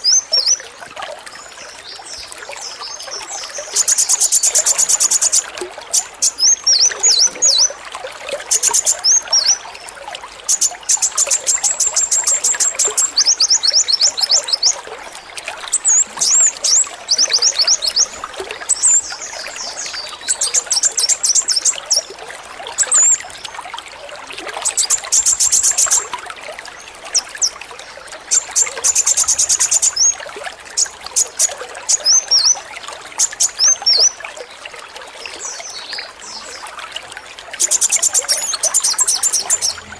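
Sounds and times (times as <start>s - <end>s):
running water trickling: 0.0s - 39.9s
sunbird rattling trills: 10.5s - 14.8s, 24.6s - 26.1s, 37.6s - 39.9s.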